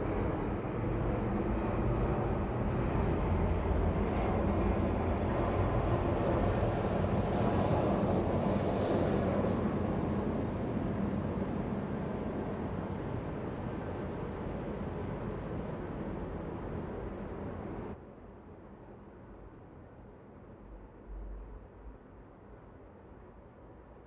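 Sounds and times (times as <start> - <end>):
low city rumble: 0.0 - 24.0
faint high whine: 4.1 - 24.0.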